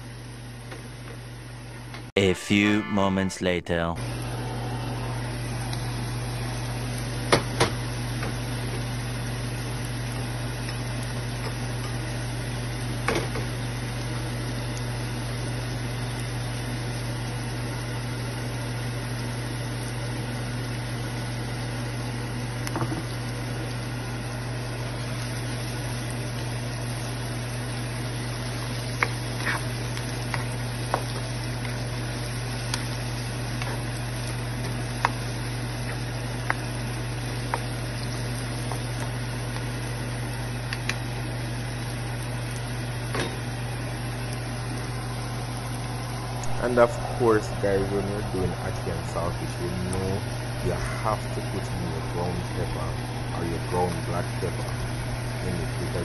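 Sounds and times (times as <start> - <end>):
low hum: 2.2 - 7.0, 43.4 - 56.0
food sizzling in oil: 5.3 - 46.5.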